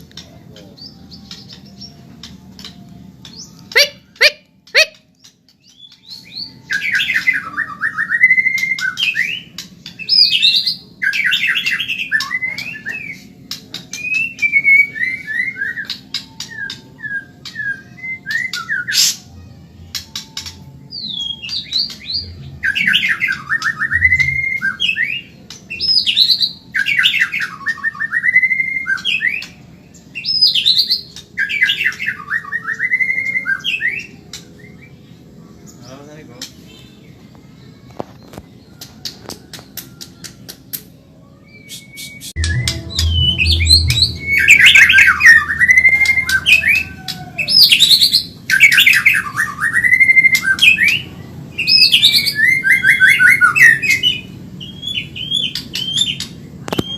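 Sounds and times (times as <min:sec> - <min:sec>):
sharp bird clicks: 0:38.3 - 0:40.9.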